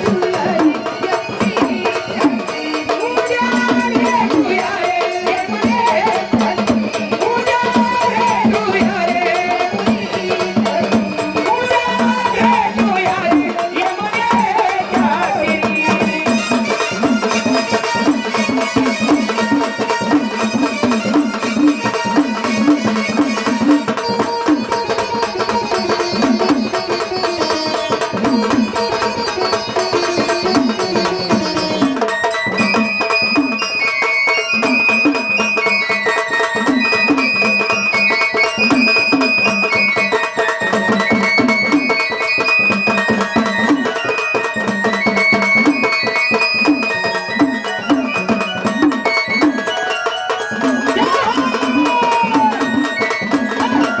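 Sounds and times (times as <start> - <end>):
fast hand drum rhythm: 0.0 - 54.0
high-pitched melody line: 45.1 - 54.0.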